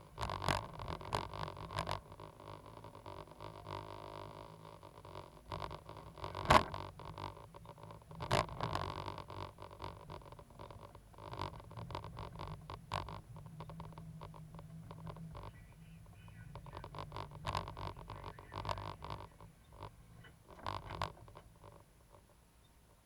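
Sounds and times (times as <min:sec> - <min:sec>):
excavator engine running: 0:00.0 - 0:23.0.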